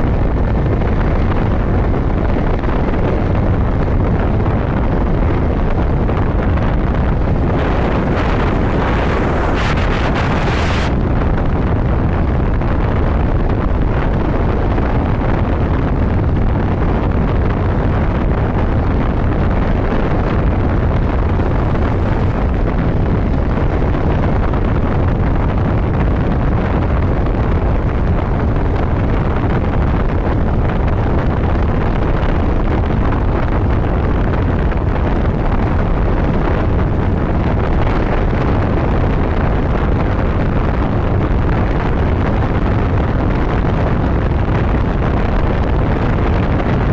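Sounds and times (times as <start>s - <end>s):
road noise: 0.0s - 12.0s, 17.1s - 25.3s
wind buffeting microphone: 0.0s - 46.9s.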